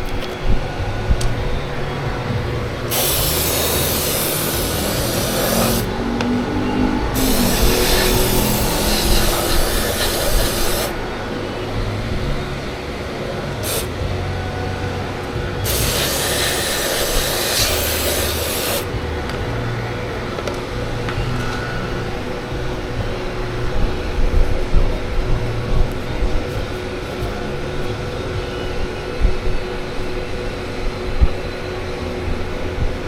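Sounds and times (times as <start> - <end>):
aerosol spray hissing: 2.9 - 5.9, 7.2 - 11.0, 13.6 - 13.9, 15.6 - 18.9.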